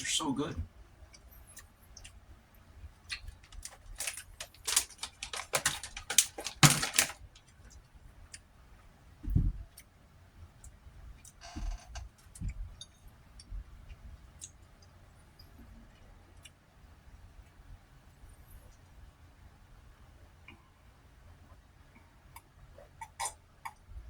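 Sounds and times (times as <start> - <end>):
utensil clicks and chewing crunches: 2.9 - 8.5.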